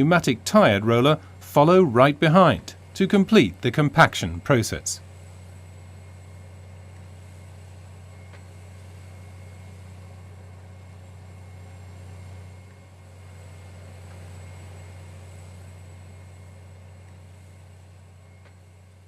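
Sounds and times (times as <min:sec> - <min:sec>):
heavy machinery engine drone: 0:00.0 - 0:19.0.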